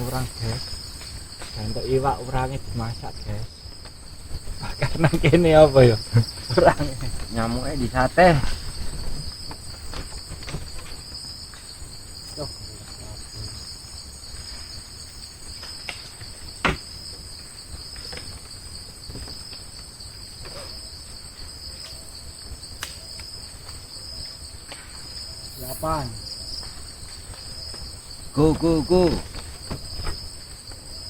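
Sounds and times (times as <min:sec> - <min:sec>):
night insects trilling: 0:00.0 - 0:31.0.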